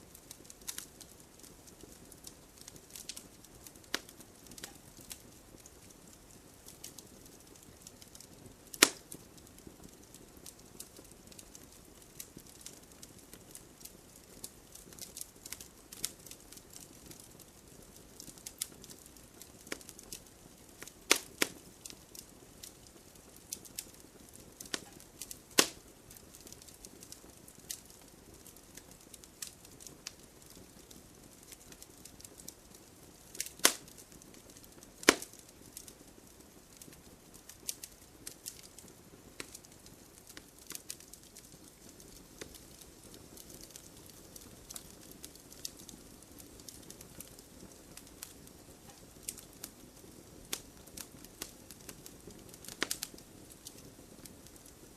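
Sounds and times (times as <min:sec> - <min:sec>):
wood fire crackling: 0:00.0 - 0:54.9
sharp pops and snaps: 0:03.9 - 0:05.2, 0:08.7 - 0:09.2, 0:20.8 - 0:22.7, 0:24.6 - 0:25.8, 0:33.3 - 0:35.9, 0:36.8 - 0:45.9, 0:50.5 - 0:53.8.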